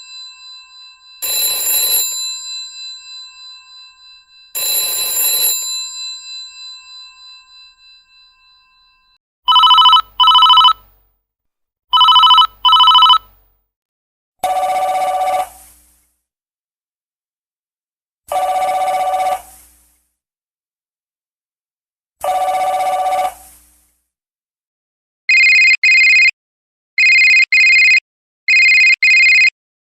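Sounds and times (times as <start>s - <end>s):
old telephone ringing: 0.0s - 10.9s, 11.9s - 13.3s, 25.3s - 26.3s, 27.0s - 29.5s.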